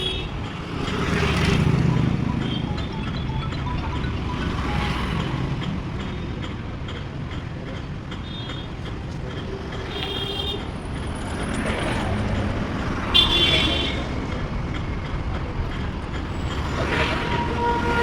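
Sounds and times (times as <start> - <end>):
traffic engines rumbling: 0.0 - 18.0
vehicle horn toot: 17.3 - 18.0.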